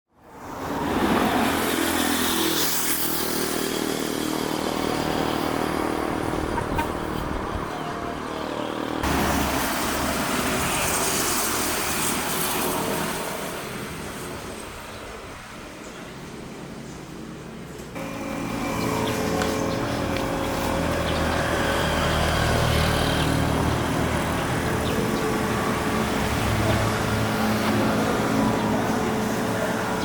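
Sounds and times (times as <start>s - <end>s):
road and traffic noise: 0.1s - 30.0s
vehicle engine: 17.9s - 30.0s.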